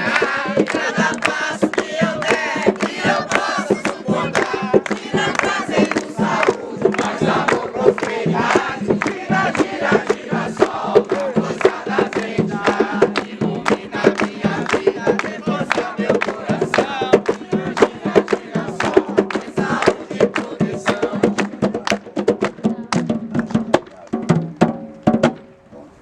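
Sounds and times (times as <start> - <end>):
crowd shouting: 0.0 - 19.8
crowd singing a chant: 0.0 - 22.1
fast drum beat: 0.0 - 25.4.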